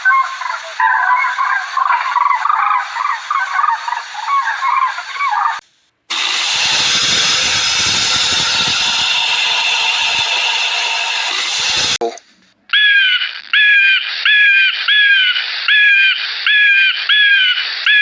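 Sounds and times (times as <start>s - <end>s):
geese honking: 0.0s - 5.6s, 12.8s - 18.0s.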